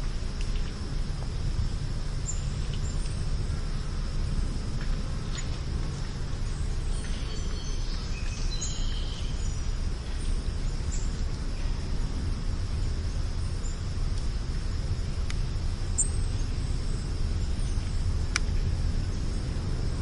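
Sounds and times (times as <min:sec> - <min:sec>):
high insect hum: 0:00.0 - 0:20.0
low rumble: 0:00.0 - 0:20.0
bird chirps: 0:06.9 - 0:11.1.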